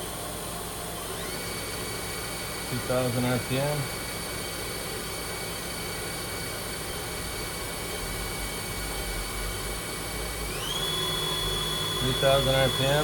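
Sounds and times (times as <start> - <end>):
mechanical hum: 0.0 - 13.0
machine spindle whining: 8.5 - 13.0.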